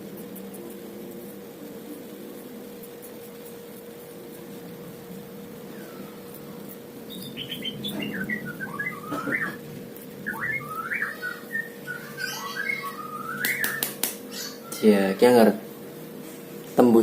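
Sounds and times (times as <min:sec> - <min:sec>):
faint steady hum: 0:00.0 - 0:17.0
small bird chirping: 0:05.6 - 0:09.6, 0:10.2 - 0:15.3.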